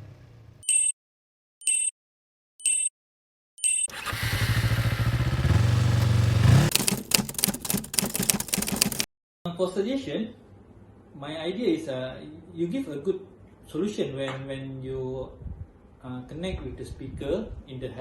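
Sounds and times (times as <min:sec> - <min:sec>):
high-pitched electronic beeps: 0:00.6 - 0:01.0, 0:01.6 - 0:01.9, 0:02.6 - 0:02.9, 0:03.6 - 0:03.9
motorcycle engine running: 0:03.9 - 0:07.1.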